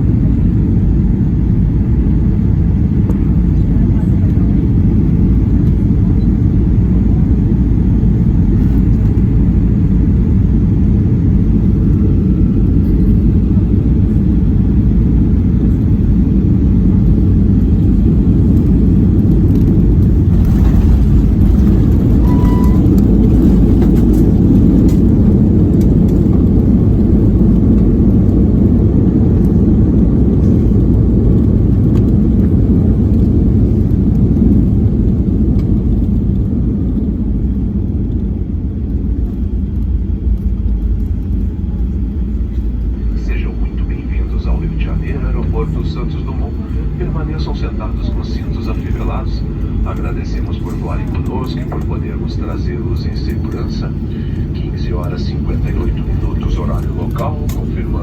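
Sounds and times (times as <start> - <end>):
airplane cabin rumble: 0.0 - 58.0
faint tone: 21.6 - 23.2.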